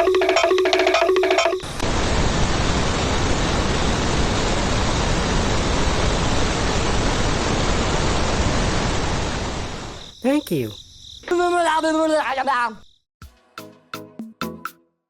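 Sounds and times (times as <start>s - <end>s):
steady rushing hiss: 1.8s - 10.1s.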